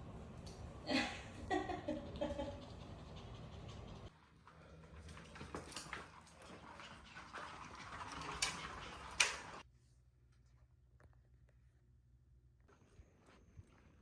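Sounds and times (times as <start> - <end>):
dogs breathing: 2.5 - 5.2.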